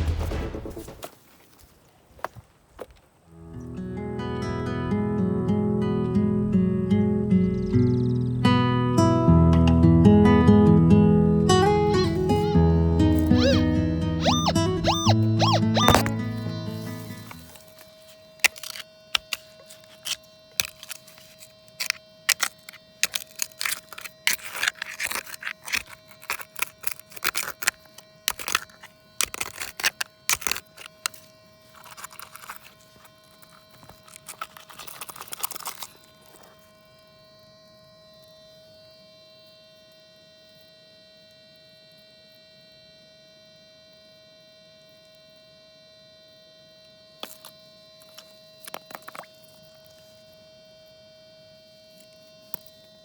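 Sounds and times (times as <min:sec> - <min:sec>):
scraping: 0:13.2 - 0:36.6.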